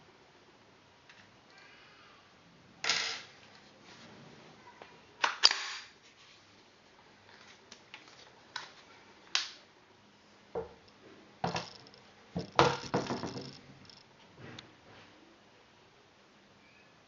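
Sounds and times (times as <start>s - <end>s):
sharp clicks and metallic clinks: 10.8s - 14.1s
rattling knocks: 11.4s - 14.0s.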